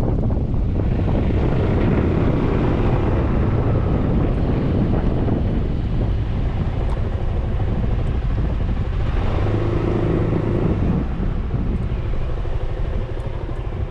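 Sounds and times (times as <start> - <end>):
scooter engine rumble: 0.0 - 13.9
wind on camera: 0.0 - 13.9.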